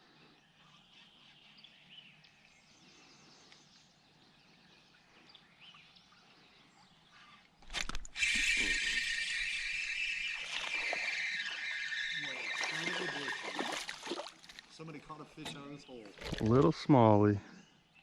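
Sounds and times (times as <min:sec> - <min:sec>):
bird chirps: 0:08.2 - 0:14.0.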